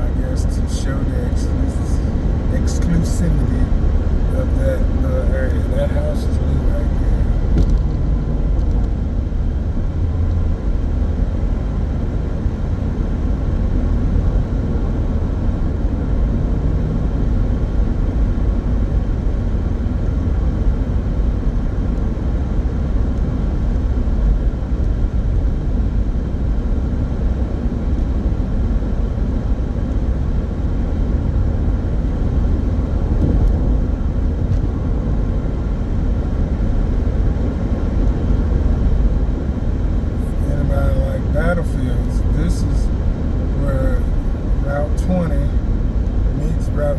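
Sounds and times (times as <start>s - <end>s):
car cabin road and engine rumble: 0.0s - 46.9s.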